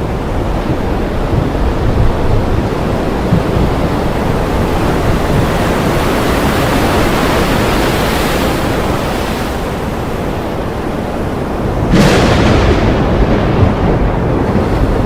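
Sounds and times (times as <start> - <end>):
heavy rain pouring: 0.0 - 15.0
deep rumble: 11.7 - 15.0.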